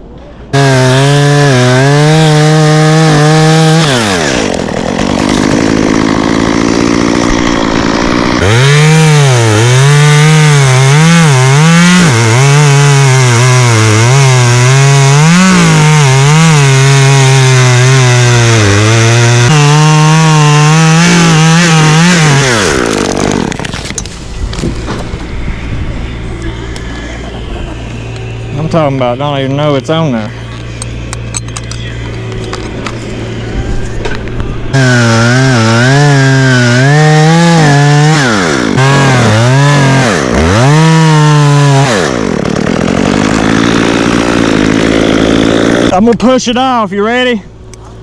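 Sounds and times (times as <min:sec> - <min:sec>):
chainsaw cutting wood: 0:00.5 - 0:25.2, 0:34.0 - 0:46.0.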